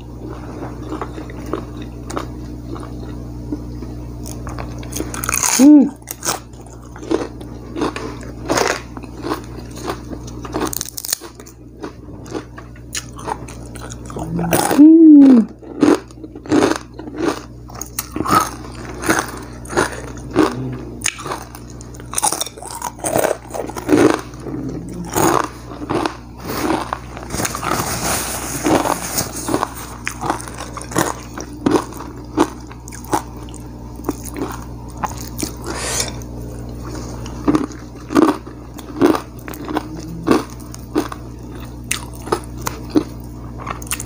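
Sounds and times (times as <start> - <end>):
chewing with wet mouth sounds: 0.0 - 28.0, 28.6 - 44.0
person humming mmm: 5.4 - 6.0, 14.1 - 15.6, 19.7 - 21.3, 24.0 - 25.6, 39.7 - 40.6
crisp crunches: 15.7 - 33.3.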